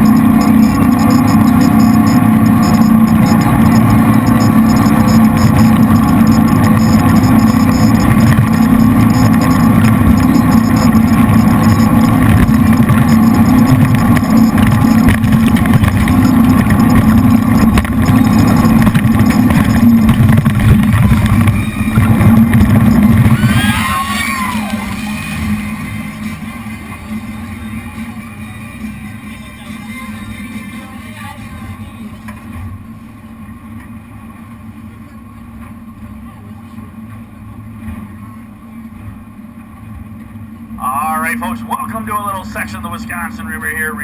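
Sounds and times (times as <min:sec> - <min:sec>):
jet boat engines at speed: 0:00.0 - 0:44.0.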